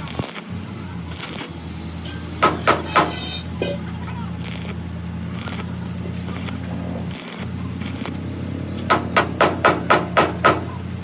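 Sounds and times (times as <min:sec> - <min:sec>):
hammer striking steel: 0:02.0 - 0:03.9, 0:08.9 - 0:10.8.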